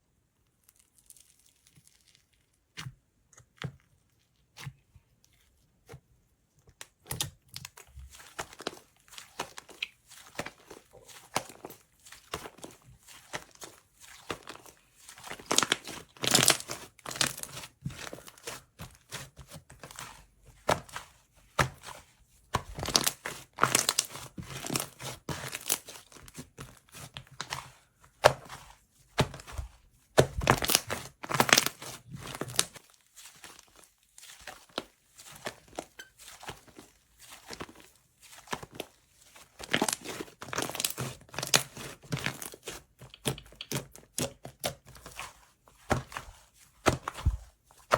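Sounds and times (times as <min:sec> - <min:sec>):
slime crackling and popping: 0:15.2 - 0:17.7, 0:22.6 - 0:26.1, 0:29.2 - 0:33.8, 0:39.6 - 0:41.8.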